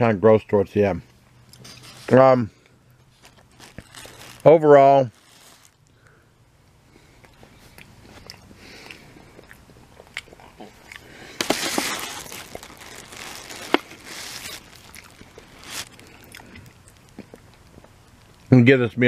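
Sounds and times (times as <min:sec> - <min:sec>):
crunchy chewing: 0:02.6 - 0:04.5, 0:06.9 - 0:18.5.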